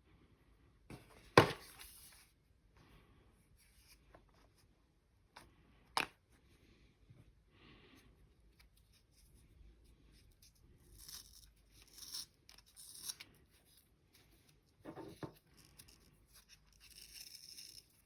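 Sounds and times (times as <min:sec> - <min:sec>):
rustling of handled headphones: 0:00.9 - 0:07.5.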